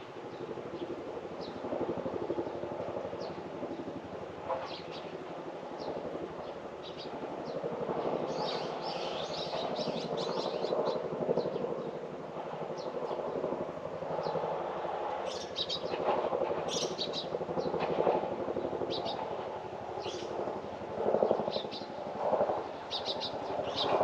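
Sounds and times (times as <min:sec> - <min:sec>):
small birds chirping: 0:08.3 - 0:12.0, 0:15.3 - 0:16.0, 0:16.7 - 0:17.7, 0:18.9 - 0:19.3, 0:20.0 - 0:20.4, 0:21.2 - 0:21.9, 0:22.9 - 0:24.0.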